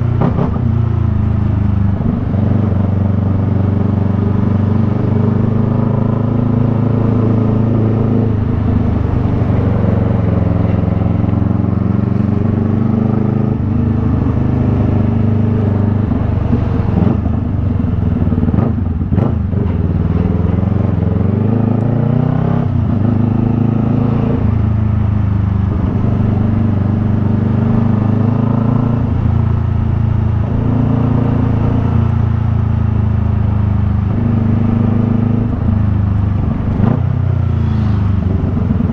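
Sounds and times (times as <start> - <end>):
motorcycle engine running: 0.0 - 21.8, 22.6 - 38.9.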